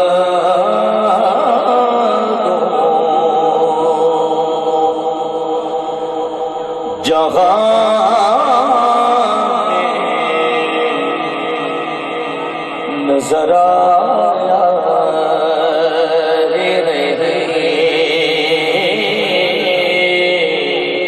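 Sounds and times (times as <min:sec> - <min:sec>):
man singing unaccompanied: 0:00.0 - 0:21.0.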